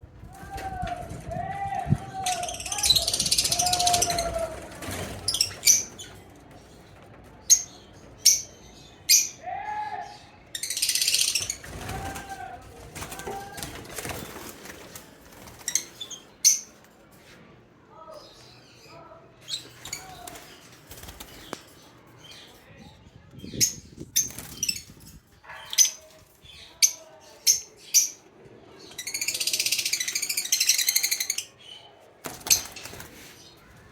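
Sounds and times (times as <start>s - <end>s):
bird wings flapping: 11.4s - 15.8s, 20.2s - 21.7s.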